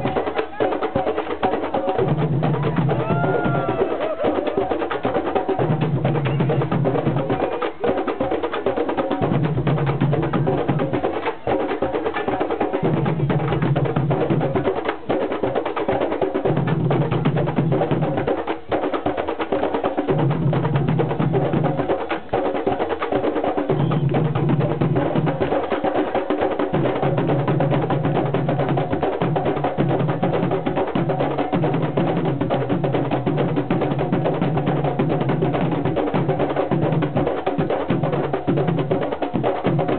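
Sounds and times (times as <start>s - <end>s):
drums: 0.0s - 39.9s.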